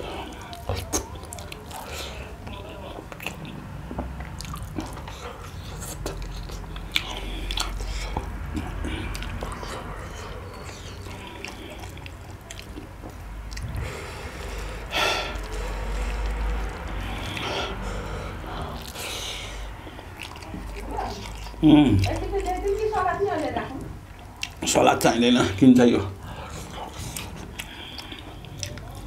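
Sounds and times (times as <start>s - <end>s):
man chewing food: 0.0s - 29.0s.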